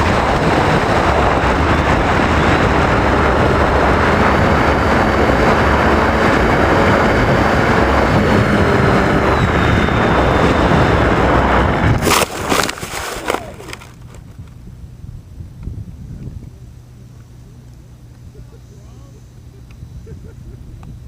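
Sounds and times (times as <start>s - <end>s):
wind rush: 0.0s - 16.6s
propeller noise: 0.0s - 21.0s
thin motor whine: 0.0s - 21.0s.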